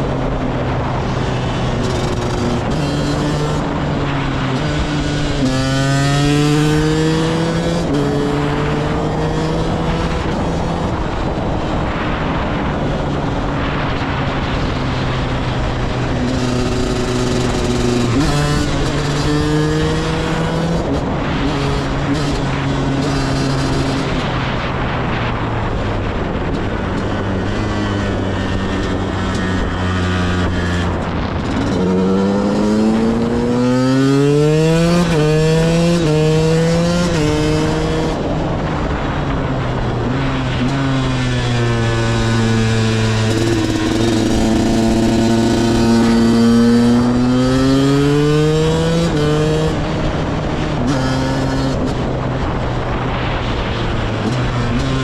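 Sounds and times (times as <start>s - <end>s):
dirt bike engine revving: 16.1s - 24.2s, 27.5s - 38.2s, 40.6s - 49.9s.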